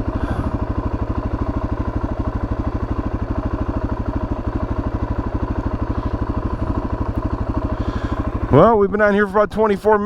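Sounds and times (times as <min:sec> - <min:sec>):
motorbike engine idling: 0:00.0 - 0:10.0.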